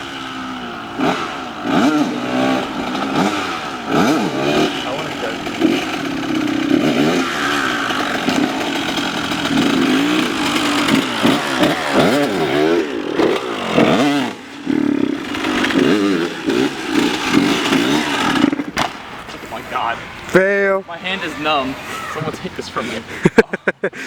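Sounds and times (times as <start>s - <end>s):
dirt bike engine revving: 0.0s - 22.3s.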